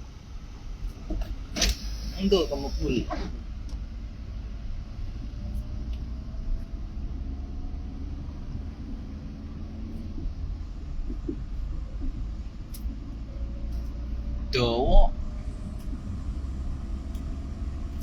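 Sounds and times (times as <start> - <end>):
road noise: 0.0 - 18.0
vehicle engine rumble: 0.0 - 18.0.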